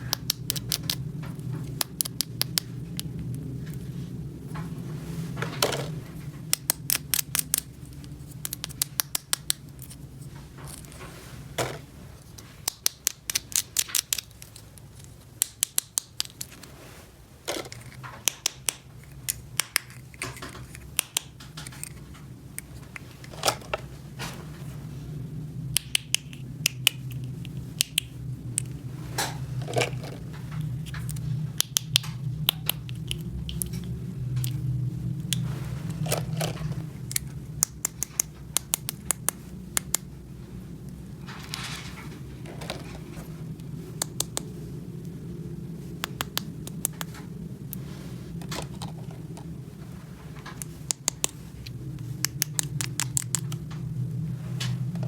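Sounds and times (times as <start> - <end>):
steady low hum: 0.0 - 55.0
plastic toy pieces clicking: 0.1 - 1.0, 1.6 - 3.1, 6.5 - 10.0, 12.6 - 16.6, 17.5 - 22.0, 36.1 - 40.0, 50.6 - 51.4, 52.2 - 53.6.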